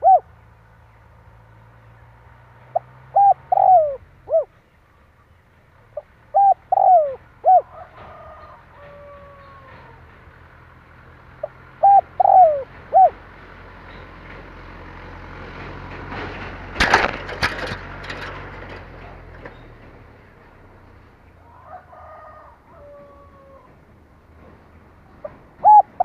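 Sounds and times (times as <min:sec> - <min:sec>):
dove cooing: 0:00.0 - 0:00.4, 0:02.7 - 0:04.6, 0:05.9 - 0:10.0, 0:11.4 - 0:13.2, 0:21.6 - 0:23.8, 0:25.2 - 0:26.0.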